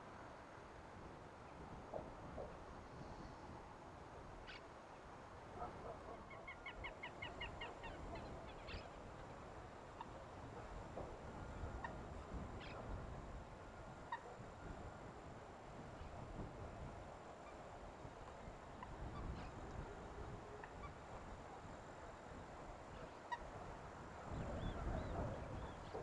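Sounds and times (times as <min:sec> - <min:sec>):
low background hiss: 0:00.0 - 0:26.0.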